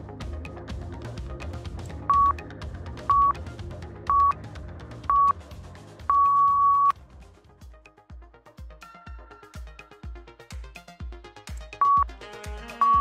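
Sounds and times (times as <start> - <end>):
electronic music with steady beat: 0.0 - 13.0
long timer beep: 2.1 - 2.4, 3.1 - 3.4, 4.1 - 4.4, 5.1 - 5.3, 6.1 - 6.9, 11.8 - 12.0
short timer beeps: 2.1 - 2.4, 6.1 - 6.9.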